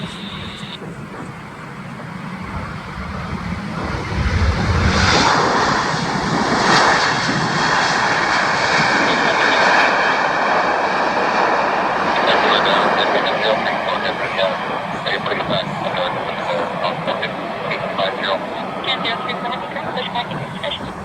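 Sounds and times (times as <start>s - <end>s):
jet engines of landing airliner: 0.0s - 21.0s.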